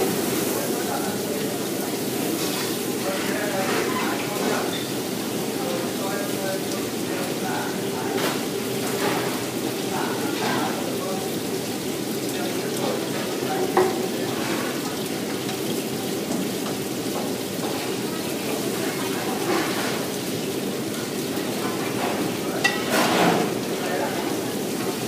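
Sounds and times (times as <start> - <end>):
food sizzling in a pan: 0.0 - 25.0
metal pan and spatula clanking: 22.0 - 23.5.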